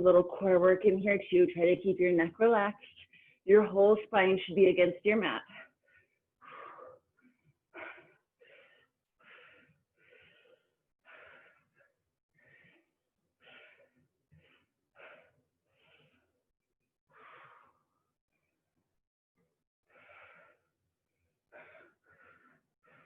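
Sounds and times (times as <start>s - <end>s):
person breathing heavily: 5.5s - 16.4s, 17.1s - 18.0s, 19.9s - 20.7s, 21.5s - 23.0s.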